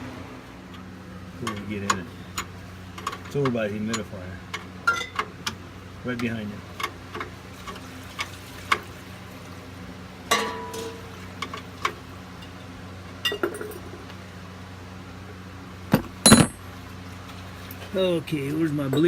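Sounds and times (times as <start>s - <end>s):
low steady hum: 0.0s - 19.0s
hard objects clinking: 15.9s - 16.6s.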